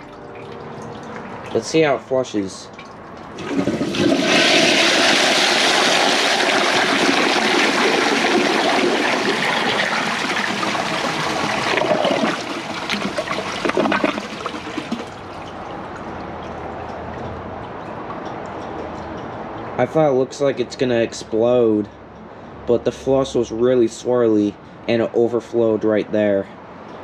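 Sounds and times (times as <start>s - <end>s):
water gurgling: 0.0s - 20.6s
toilet flushing: 3.2s - 16.2s.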